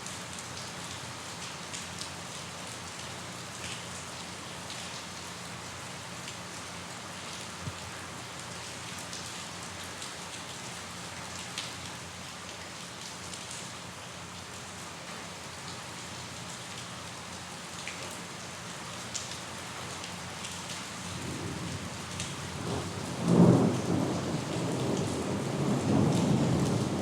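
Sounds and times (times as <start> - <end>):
rain drops ticking: 0.0 - 27.0
steady rain falling: 0.0 - 27.0
thunder rumbling: 22.5 - 27.0.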